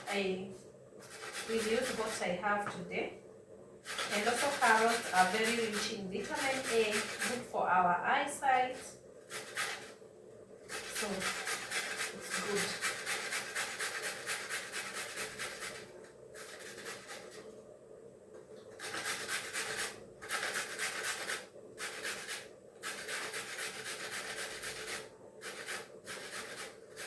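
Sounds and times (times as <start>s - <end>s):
carrots grated on metal grater: 1.0s - 2.2s, 3.9s - 7.4s, 10.7s - 15.8s, 16.4s - 17.4s, 18.8s - 27.0s.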